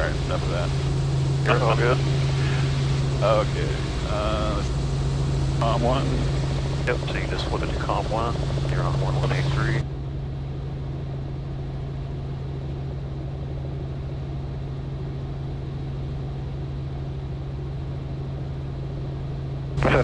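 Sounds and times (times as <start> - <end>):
helicopter engine and rotors drone: 0.0 - 20.0.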